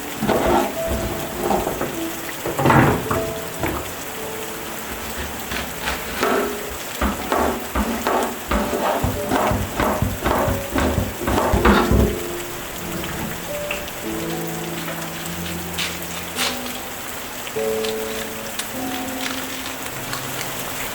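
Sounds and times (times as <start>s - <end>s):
soft background music: 0.0s - 20.9s
steady rain: 0.0s - 20.9s
quick knocks: 0.2s - 4.2s, 4.8s - 13.5s.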